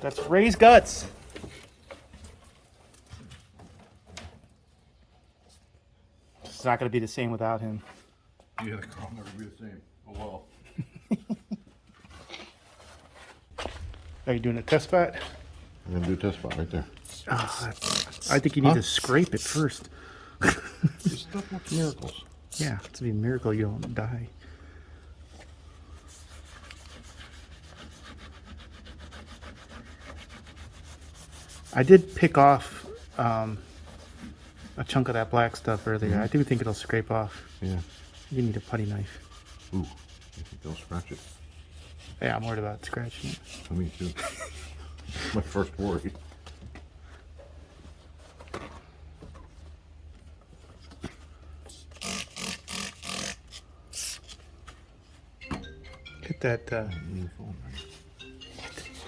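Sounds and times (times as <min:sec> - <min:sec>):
rapid back-and-forth scrubbing: 0:25.5 - 0:44.8
short rasping strokes: 0:51.7 - 0:54.4.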